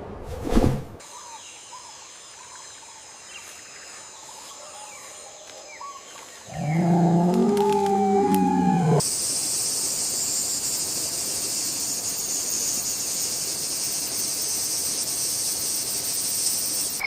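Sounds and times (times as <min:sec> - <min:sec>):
high insect whine: 0:06.1 - 0:17.0
low wavering animal call: 0:06.5 - 0:09.0.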